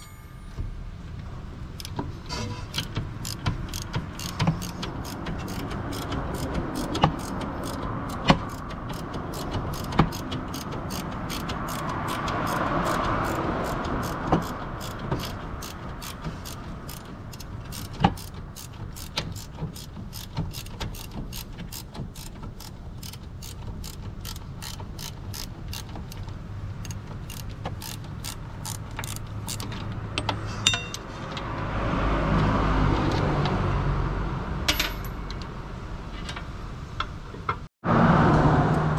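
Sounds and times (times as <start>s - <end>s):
ratchet wrench clicking: 1.8s - 2.0s, 2.7s - 29.9s.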